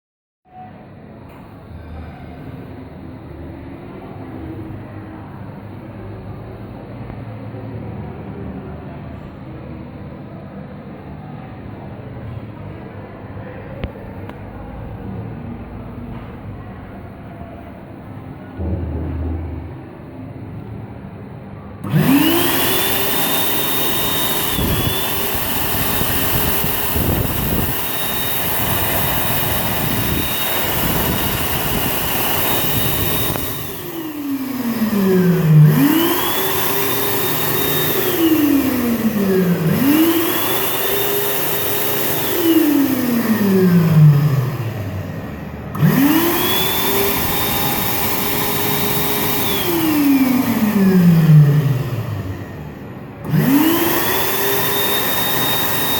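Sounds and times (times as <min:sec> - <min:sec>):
air dryer fan motor whining: 0:13.4 - 0:55.9.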